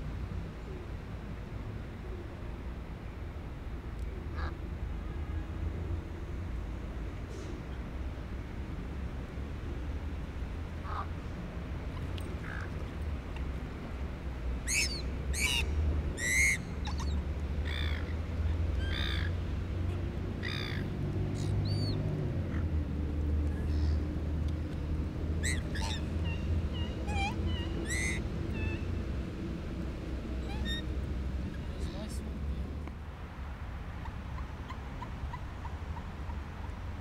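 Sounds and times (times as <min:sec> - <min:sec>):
bird calling: 0:14.6 - 0:19.4, 0:20.4 - 0:22.6, 0:25.4 - 0:29.0, 0:30.3 - 0:30.9.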